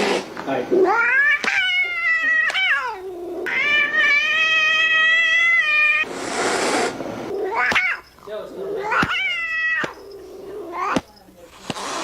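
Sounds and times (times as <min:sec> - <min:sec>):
cat yowling: 0:00.8 - 0:06.1, 0:07.3 - 0:11.0.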